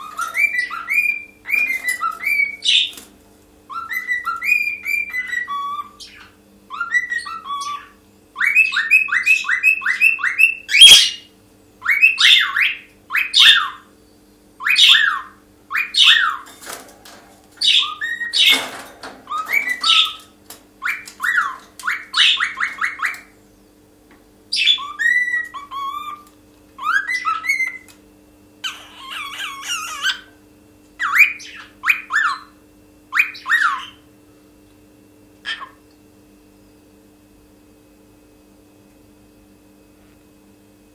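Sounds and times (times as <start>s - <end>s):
cockatiel whistling song: 0.0s - 2.9s, 3.7s - 13.8s, 14.6s - 16.4s, 17.6s - 18.6s, 20.8s - 23.3s, 24.5s - 27.9s, 31.0s - 32.5s, 33.1s - 34.0s
faint steady hum: 0.0s - 40.9s.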